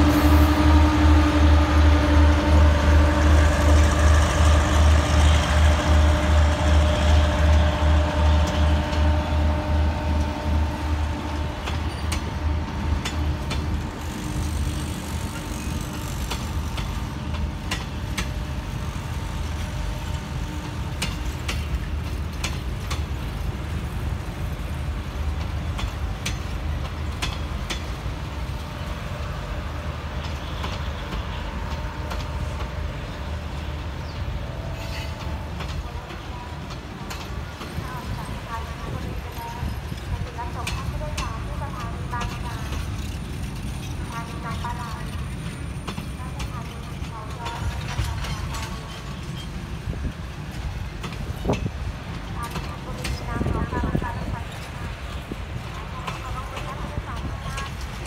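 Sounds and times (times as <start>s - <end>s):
diesel locomotive engine throbbing: 0.0s - 58.0s
wheels clicking on track: 11.3s - 29.3s, 34.8s - 58.0s.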